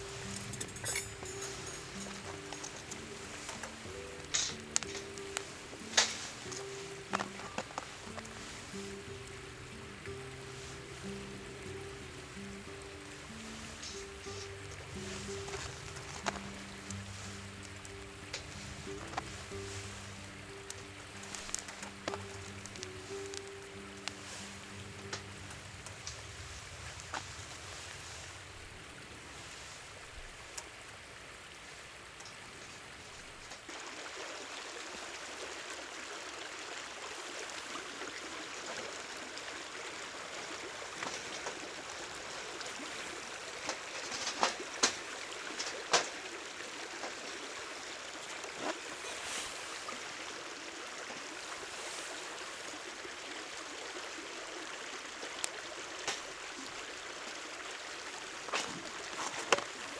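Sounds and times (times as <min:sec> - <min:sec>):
river water running: 0:00.0 - 0:59.9.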